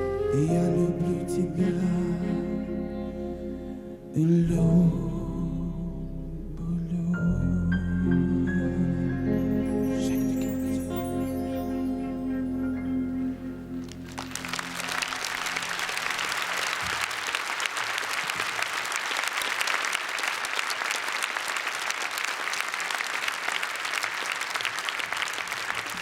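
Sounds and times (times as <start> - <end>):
audience applauding: 13.7 - 26.0.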